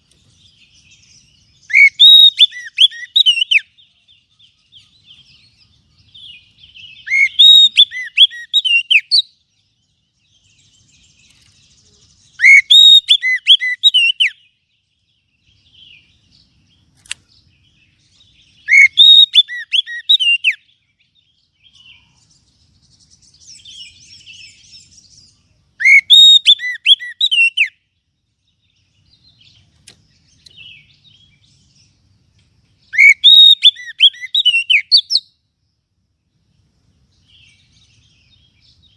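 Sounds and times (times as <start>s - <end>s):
soft bird chirps and chatter: 0.0s - 38.9s
bird singing whistled phrases: 0.7s - 9.4s, 10.2s - 14.6s, 18.2s - 20.8s, 23.2s - 27.8s, 32.8s - 35.4s.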